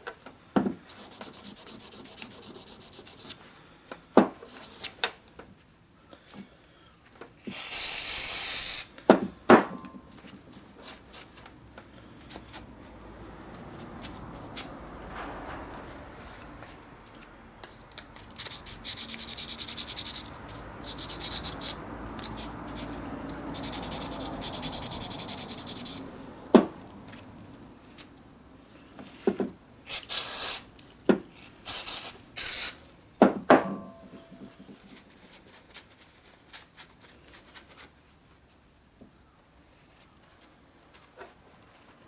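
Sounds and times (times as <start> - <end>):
scrubbing strokes on metal part: 1.0 - 3.4, 18.4 - 26.0
short loud hissing bursts: 7.4 - 9.0, 29.9 - 30.7, 31.3 - 32.9.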